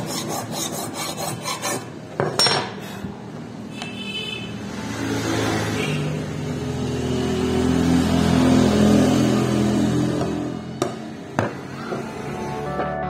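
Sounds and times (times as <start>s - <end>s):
background music low notes: 12.2s - 13.0s.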